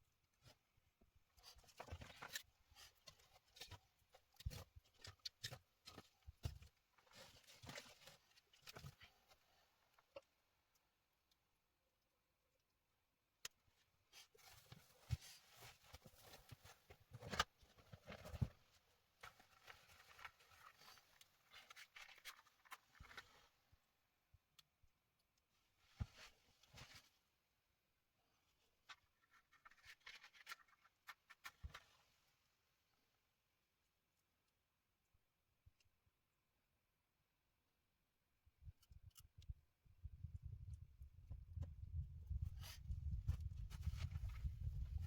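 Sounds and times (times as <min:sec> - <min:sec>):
faint clicks and rustles: 0:00.1 - 0:32.9, 0:38.5 - 0:45.0.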